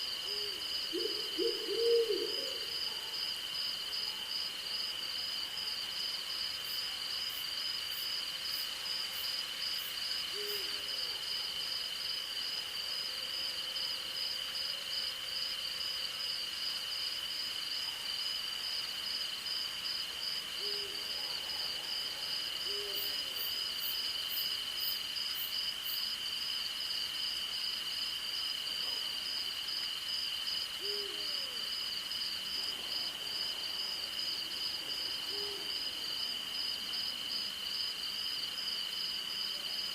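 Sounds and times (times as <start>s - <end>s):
owl hooting: 0.3s - 2.7s.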